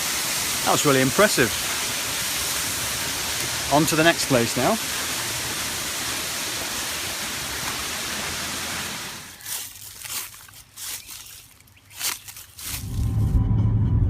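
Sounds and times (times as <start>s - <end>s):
waterfall rushing: 0.0s - 9.4s.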